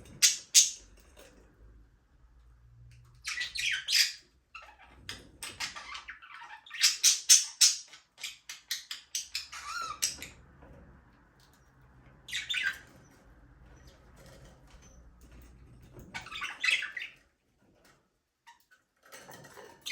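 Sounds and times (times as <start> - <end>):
budgerigars chirping and chattering: 0.1 - 0.8, 3.2 - 10.4, 12.2 - 13.1, 16.2 - 17.2.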